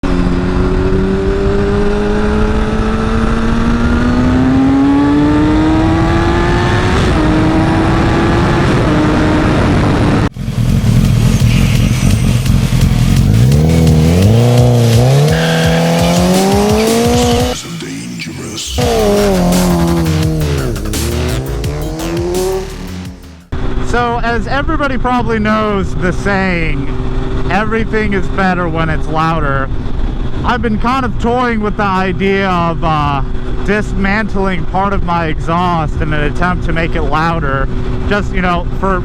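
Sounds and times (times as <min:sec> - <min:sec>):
vehicle engine revving through gears: 0:00.0 - 0:23.9, 0:26.8 - 0:29.0.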